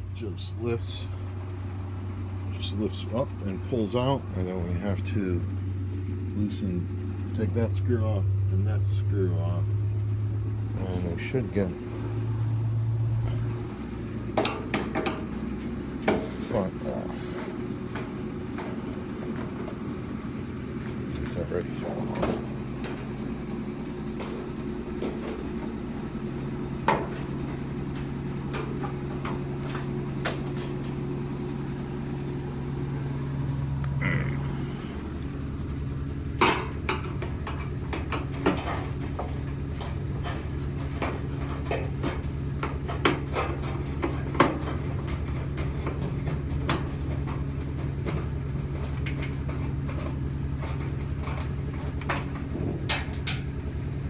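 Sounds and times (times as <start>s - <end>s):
steady low hum: 0.0s - 54.0s
metal clanks and knocks: 10.7s - 34.0s, 34.8s - 54.0s.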